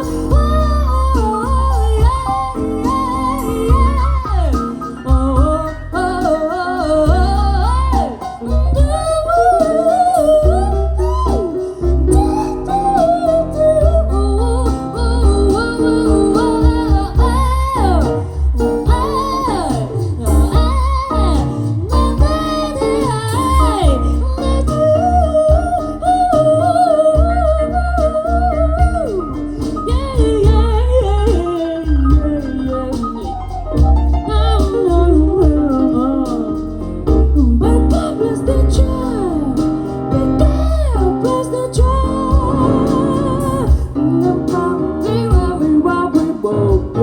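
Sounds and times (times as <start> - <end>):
jazz band music: 0.0 - 47.0
woman singing wordless lines: 0.0 - 47.0.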